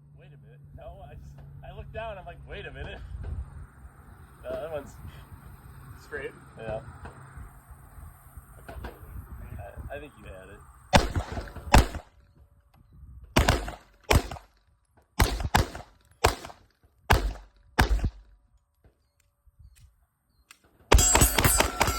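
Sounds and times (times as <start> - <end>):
pistol shots: 10.9 - 12.1, 13.4 - 14.6, 15.2 - 18.3, 20.9 - 21.9.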